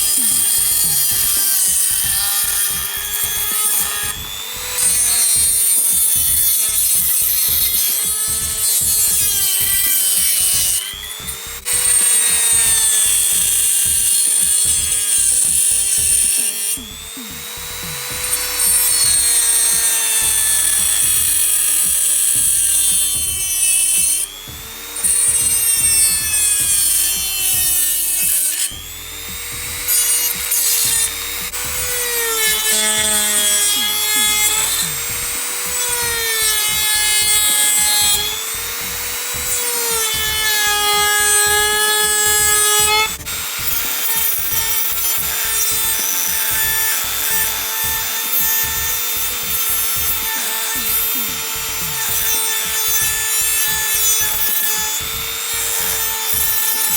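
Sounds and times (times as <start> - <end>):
die grinder grinding: 0.0 - 56.9.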